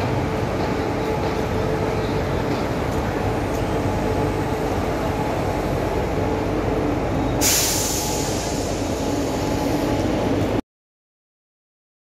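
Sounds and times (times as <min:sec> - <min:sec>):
electric locomotive rumbling past: 0:00.0 - 0:10.6
loud hiss: 0:07.4 - 0:09.7.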